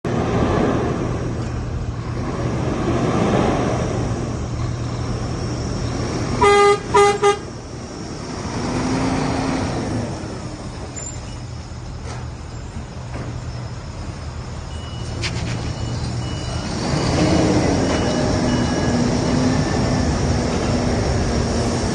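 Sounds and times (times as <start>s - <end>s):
truck diesel engine running: 0.1s - 21.9s
vehicle horn toots: 6.4s - 7.5s.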